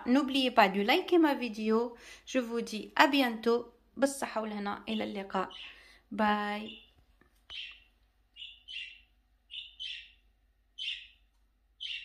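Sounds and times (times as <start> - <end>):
bird chirping: 4.9 - 12.0.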